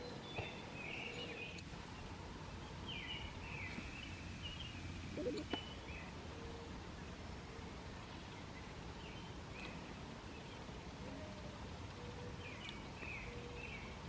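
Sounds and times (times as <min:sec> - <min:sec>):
songbirds warbling: 0:00.0 - 0:14.0
steady low outdoor background: 0:00.0 - 0:14.0
faint clicks: 0:01.5 - 0:01.7, 0:11.8 - 0:13.2.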